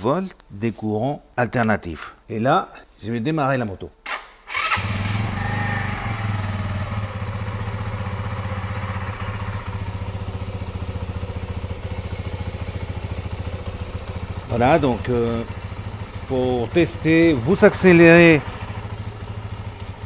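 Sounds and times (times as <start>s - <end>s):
motorcycle engine starting and idling: 4.1s - 20.0s.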